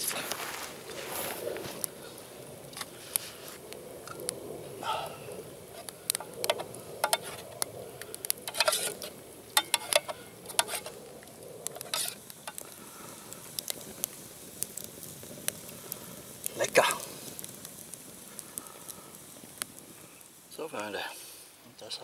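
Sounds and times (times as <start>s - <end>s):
spoon scraping metal pot: 8.4s - 11.0s, 11.8s - 12.6s.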